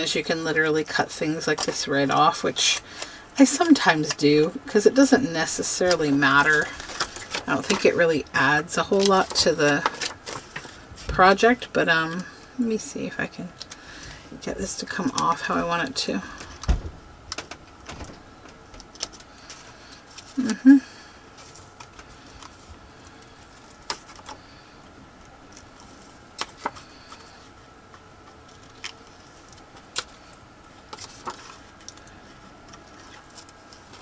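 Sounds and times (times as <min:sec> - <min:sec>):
faint steady hum: 0:00.0 - 0:34.0
paper handled: 0:05.5 - 0:08.1, 0:08.8 - 0:11.5.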